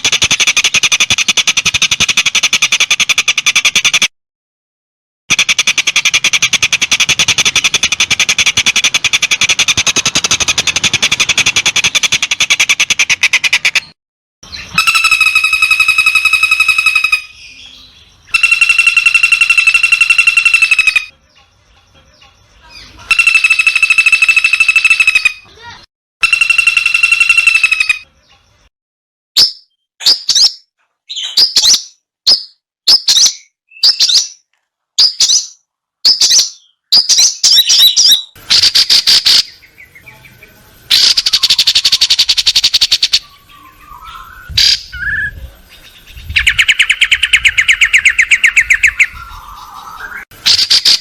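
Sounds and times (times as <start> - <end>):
fast high bird trill: 5.3 - 21.2, 22.8 - 28.1, 40.9 - 51.0
long high bird calls: 5.3 - 28.7, 35.0 - 51.0.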